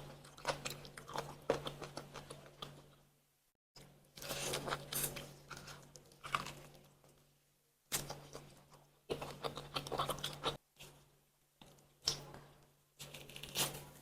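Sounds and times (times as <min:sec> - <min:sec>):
chewing and tearing chicken: 0:04.2 - 0:06.9, 0:07.9 - 0:10.6.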